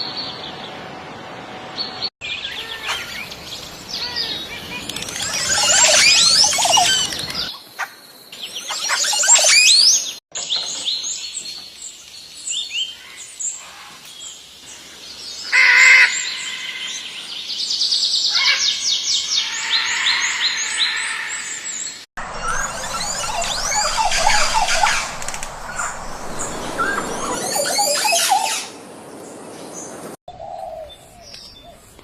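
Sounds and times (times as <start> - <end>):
birds chirping and whistling: 2.3 - 7.6, 8.4 - 11.2, 18.2 - 28.7.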